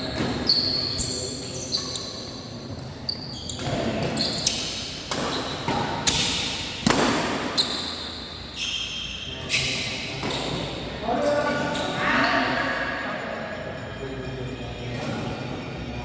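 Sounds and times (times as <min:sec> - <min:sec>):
shoes squeaking on court floor: 0:00.0 - 0:12.7
rackets hitting shuttlecock: 0:03.6 - 0:07.6.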